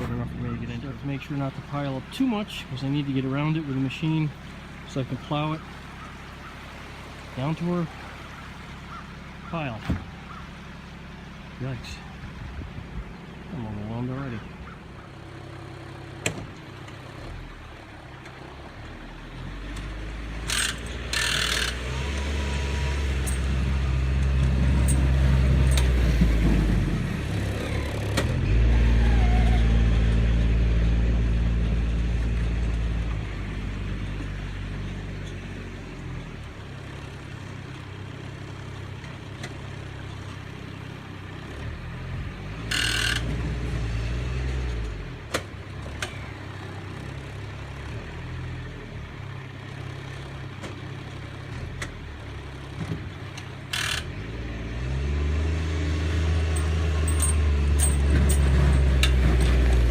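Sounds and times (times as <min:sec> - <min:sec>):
tractor diesel engine under load: 0:00.0 - 0:59.9
short metal clanks: 0:56.5 - 0:59.6.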